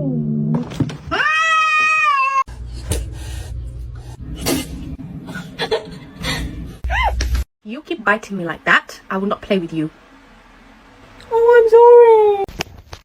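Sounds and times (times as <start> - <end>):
cat meowing: 1.1 - 2.5.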